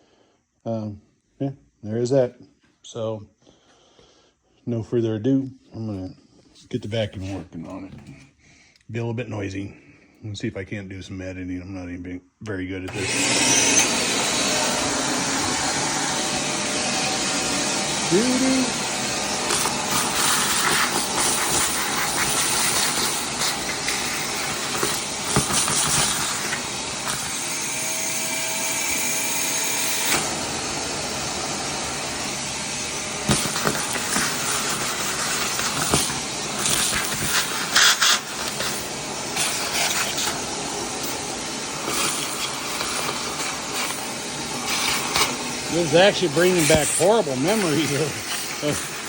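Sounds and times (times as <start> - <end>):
vacuum cleaner running: 12.8 - 49.0.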